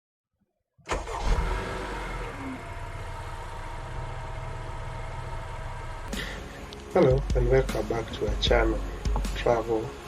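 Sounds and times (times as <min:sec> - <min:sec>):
car engine running: 0:01.0 - 0:09.4.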